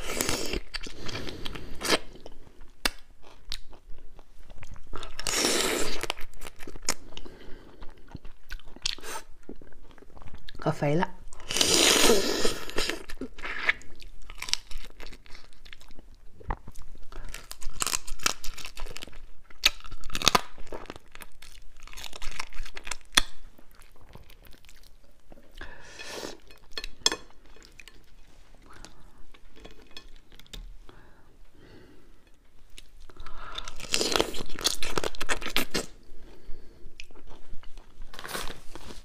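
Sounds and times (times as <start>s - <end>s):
crab shells cracking in chewing: 12.8s - 25.0s.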